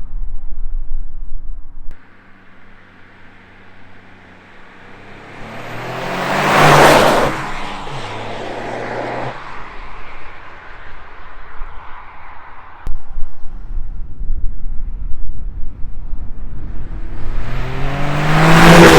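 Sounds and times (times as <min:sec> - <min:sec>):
car engine passing by: 0:02.0 - 0:12.9, 0:16.5 - 0:18.9.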